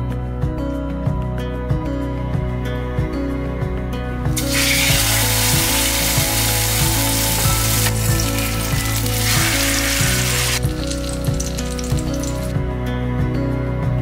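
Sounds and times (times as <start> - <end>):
eggplant sizzling in hot oil: 4.4 - 12.5.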